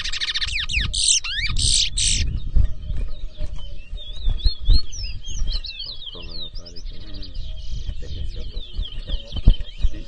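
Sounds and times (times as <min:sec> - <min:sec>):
finch singing whistled trills: 0:00.0 - 0:10.0
low crowd rumble: 0:02.3 - 0:10.0.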